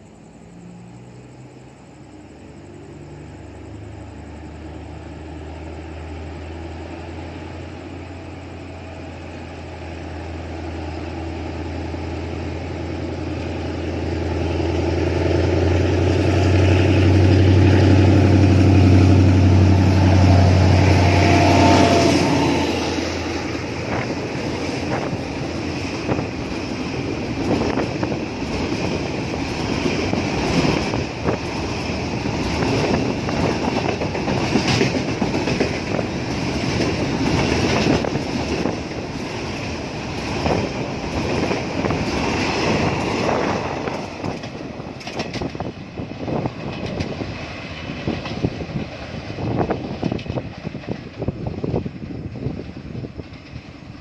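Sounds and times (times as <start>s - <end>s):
diesel locomotive engine: 0.0s - 54.0s
wheels clicking over rail joints: 23.0s - 54.0s.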